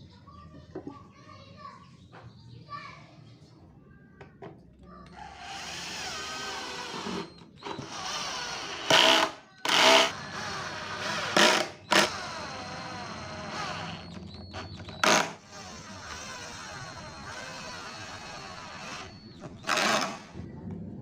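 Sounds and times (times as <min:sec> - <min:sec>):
power drill bursts: 0:05.1 - 0:20.4.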